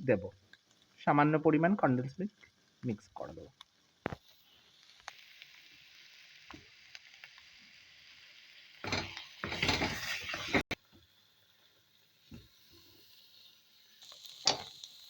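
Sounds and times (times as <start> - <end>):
food sizzling in oil: 0.0 - 15.0
spatula stirring and scraping: 9.0 - 10.7.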